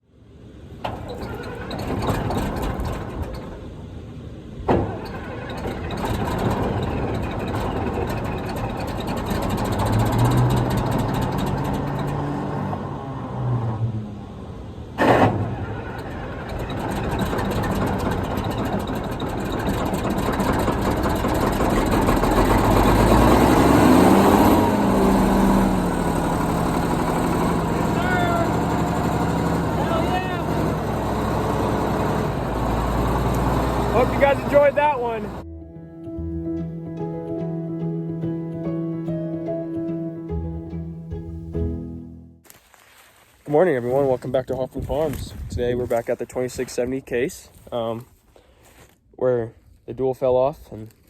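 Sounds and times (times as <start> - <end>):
vehicle engine running: 4.8 - 13.3, 14.0 - 35.4.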